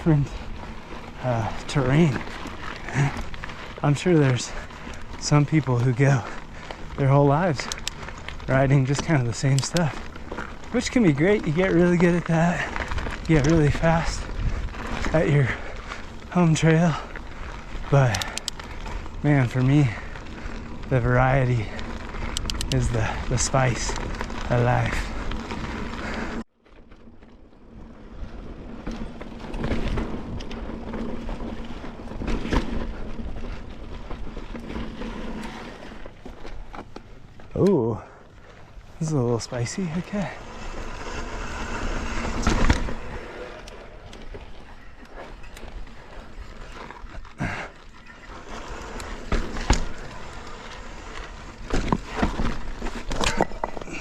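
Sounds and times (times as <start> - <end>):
bike tyres rattling over rock: 0.0 - 54.0
bike knocks and clunks: 28.8 - 37.6, 46.8 - 50.6, 51.2 - 54.0.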